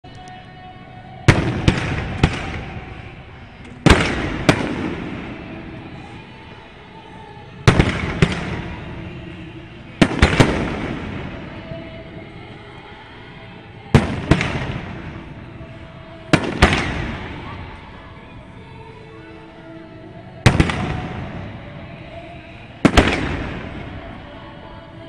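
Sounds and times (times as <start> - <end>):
rolling echo: 0.1 - 25.0
firework bangs: 1.3 - 6.1, 7.6 - 12.0, 13.9 - 17.8, 20.4 - 24.2.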